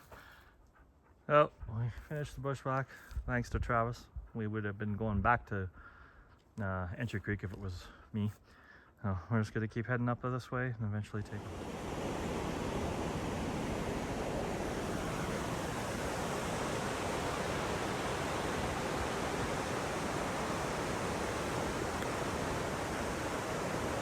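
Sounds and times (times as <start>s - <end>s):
steady rushing noise: 11.3s - 24.0s.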